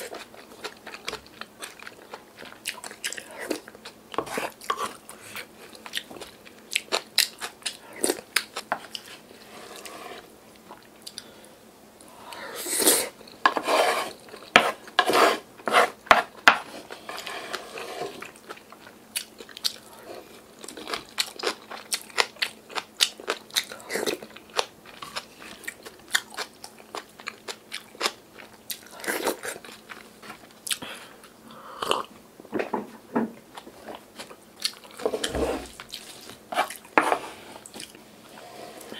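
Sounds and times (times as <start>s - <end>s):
close-up chewing and crunching: 0.0s - 9.3s, 17.6s - 32.1s, 33.5s - 37.0s.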